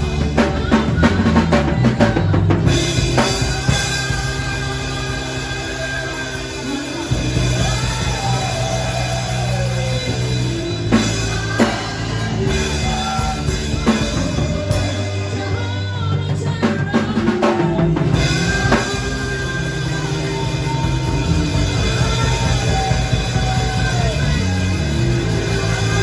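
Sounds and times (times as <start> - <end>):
music with drum kit and chords: 0.0 - 26.0.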